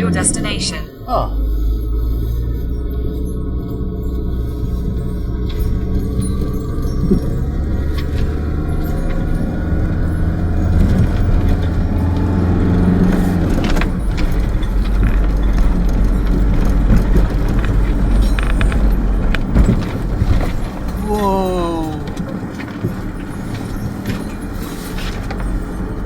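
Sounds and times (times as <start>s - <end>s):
road rumble: 0.0s - 26.0s
van engine running: 0.0s - 26.0s
loose items jangling and rattling: 3.0s - 26.0s.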